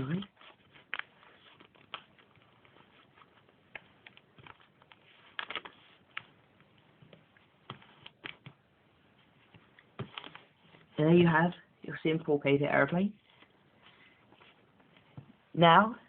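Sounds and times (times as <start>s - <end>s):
paper being folded and creased: 0.0s - 11.0s.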